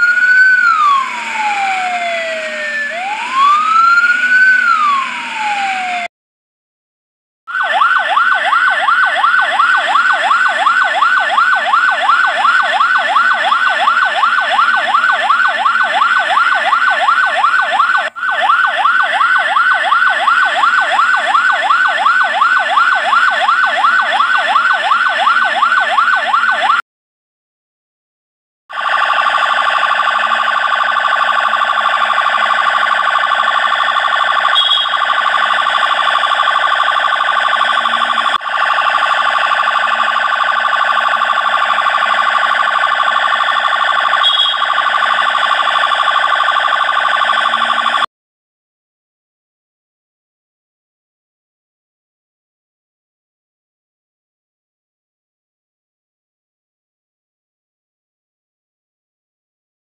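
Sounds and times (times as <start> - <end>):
electronic siren yelping: 0.0 - 6.1, 7.5 - 26.8, 28.7 - 48.1.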